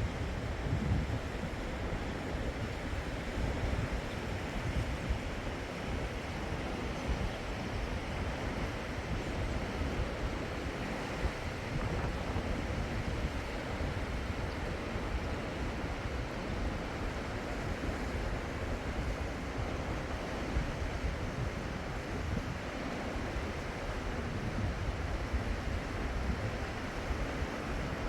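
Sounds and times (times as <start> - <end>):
wind buffeting microphone: 0.0 - 5.4, 11.2 - 14.8.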